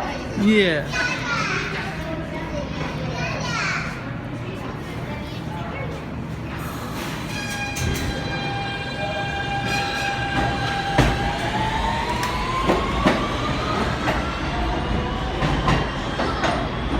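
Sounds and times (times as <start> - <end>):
subway train motor whine: 4.0 - 16.9.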